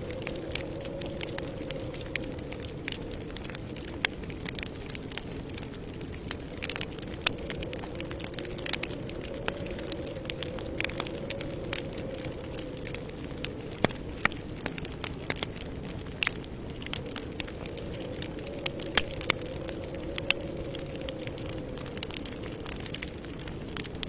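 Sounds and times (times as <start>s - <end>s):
burning wood popping: 0.0s - 24.0s
low rush of flame: 0.0s - 24.0s.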